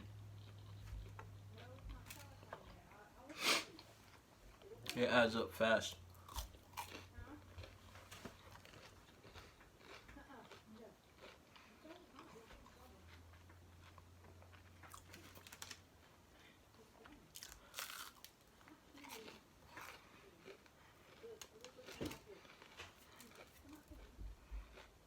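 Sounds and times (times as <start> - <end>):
chewing and crunching food: 0.0 - 5.0, 5.8 - 25.0
wrapper crinkling: 15.0 - 15.8.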